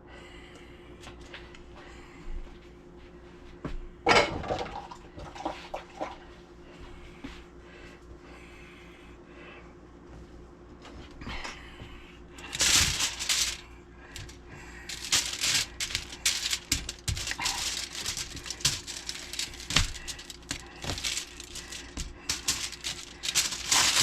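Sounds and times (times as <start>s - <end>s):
faint steady hum: 0.0s - 24.0s
rustling of hands handling things: 10.1s - 24.0s
hands tapping and clicking objects: 14.2s - 24.0s.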